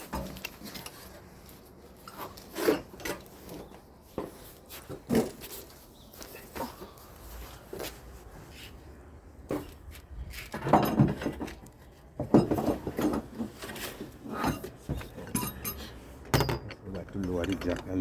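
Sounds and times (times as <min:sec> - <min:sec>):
metal tools clinking: 0:14.4 - 0:18.0.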